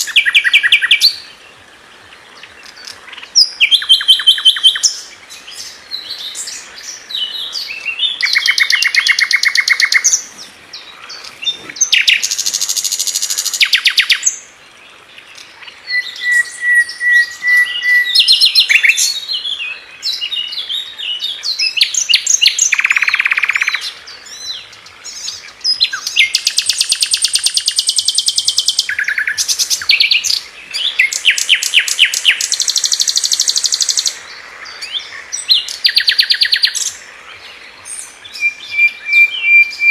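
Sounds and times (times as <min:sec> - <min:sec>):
bird chattering calls: 0:07.4 - 0:14.3
bird steady whistle: 0:15.9 - 0:19.1.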